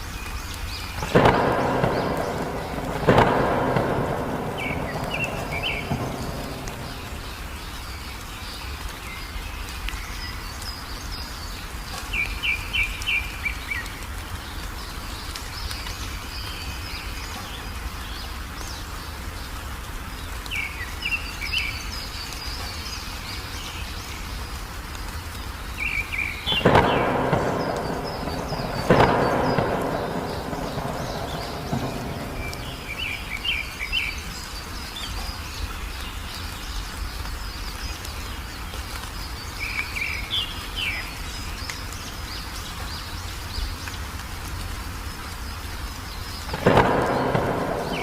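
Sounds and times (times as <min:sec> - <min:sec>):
steady rain: 0:00.0 - 0:48.0
thunder rumbling: 0:01.0 - 0:08.2, 0:26.3 - 0:34.4, 0:46.5 - 0:48.0.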